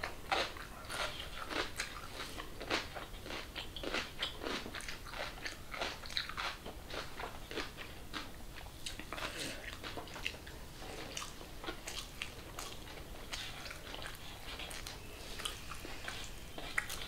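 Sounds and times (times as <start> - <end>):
chewing food: 0.0 - 17.0
crunchy wet mouth clicks: 11.1 - 17.0.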